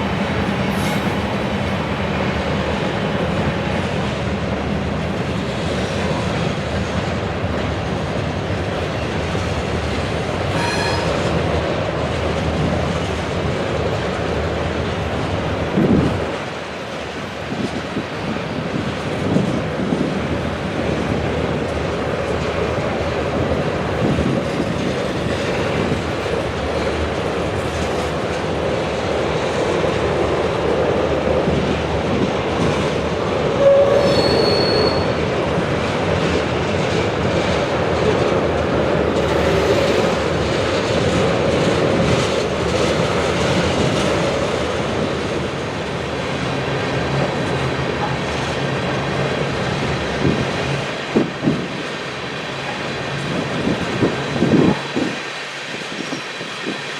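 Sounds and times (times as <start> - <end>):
train wheels rumbling on rails: 0.0 - 56.9
high wheel squeal: 10.5 - 11.4, 33.6 - 35.2.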